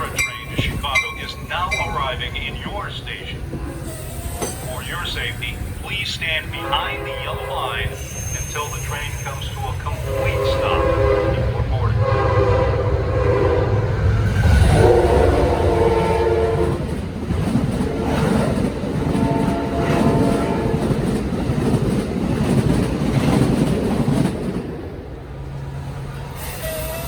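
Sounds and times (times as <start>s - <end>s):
train rumbling on rails: 0.0s - 27.0s
locomotive horn: 6.2s - 16.9s, 17.8s - 21.0s.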